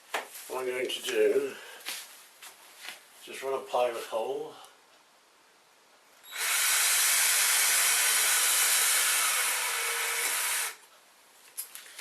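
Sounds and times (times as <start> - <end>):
cordless drill drilling: 6.3 - 10.8.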